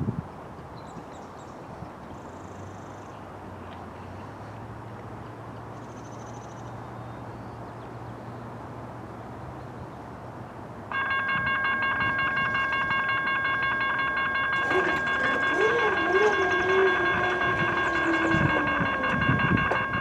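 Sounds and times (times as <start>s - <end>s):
grade crossing warning bell: 10.9s - 20.0s.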